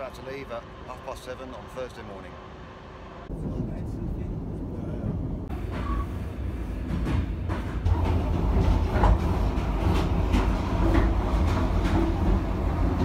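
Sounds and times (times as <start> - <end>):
train rumbling on rails: 0.0 - 13.0
rail clacks and knocks: 6.8 - 13.0.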